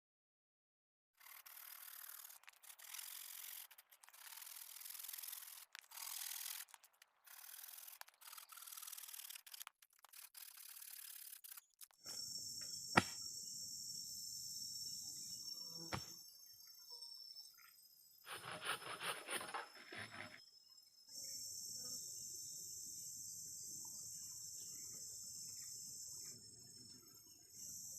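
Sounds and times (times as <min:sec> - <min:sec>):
high-pitched insect chorus: 0:12.1 - 0:27.9
rough scraping strokes: 0:18.3 - 0:20.4.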